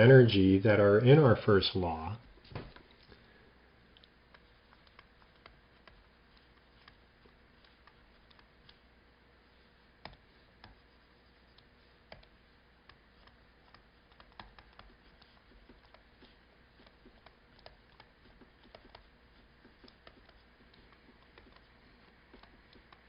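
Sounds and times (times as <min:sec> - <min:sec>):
faint irregular clicks and taps: 0:03.9 - 0:08.9, 0:09.8 - 0:23.0.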